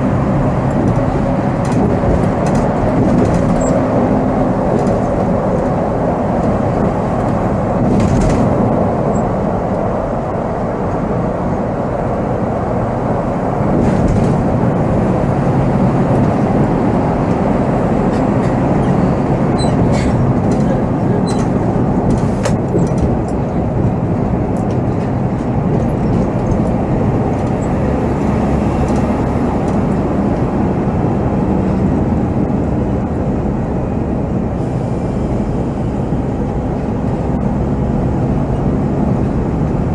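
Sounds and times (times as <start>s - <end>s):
bus diesel engine running: 0.0s - 39.9s
road and cabin rumble: 0.0s - 39.9s.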